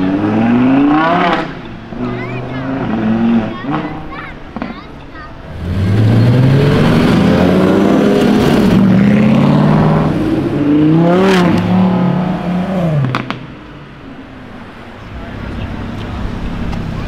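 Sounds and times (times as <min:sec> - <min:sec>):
car engine revving past: 0:05.5 - 0:13.6.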